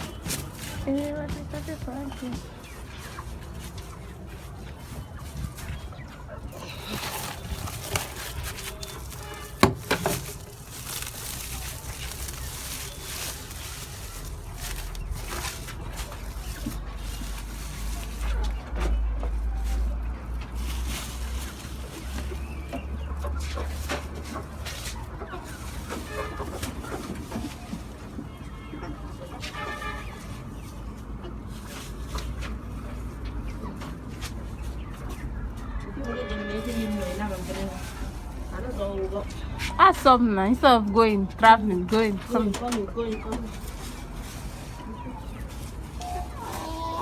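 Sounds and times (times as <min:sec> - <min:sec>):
chickens clucking: 0:00.0 - 0:47.0
knocks and rattles: 0:06.6 - 0:14.0.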